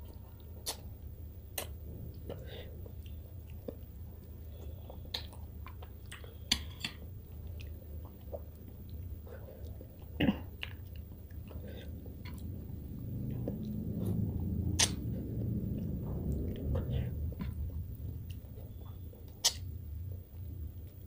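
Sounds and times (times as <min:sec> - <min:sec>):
chewing with wet mouth smacks: 0:00.0 - 0:21.0
wet mouth smacks and clicks: 0:00.6 - 0:00.9, 0:05.1 - 0:07.0, 0:14.8 - 0:15.0, 0:19.4 - 0:19.7.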